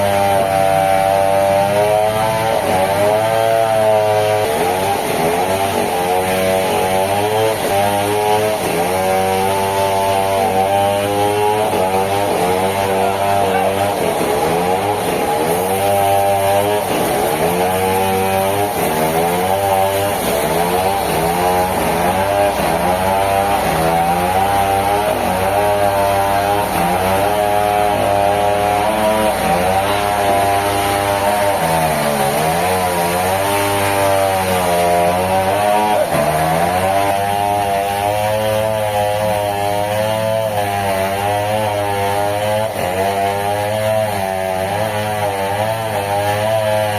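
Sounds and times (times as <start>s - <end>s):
engine-driven saw running: 0.0s - 46.9s.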